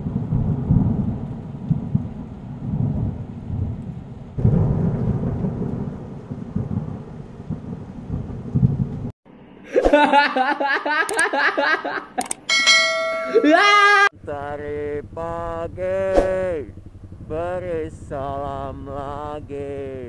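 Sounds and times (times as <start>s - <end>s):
thunder rumbling: 0.0s - 9.2s, 15.0s - 18.9s.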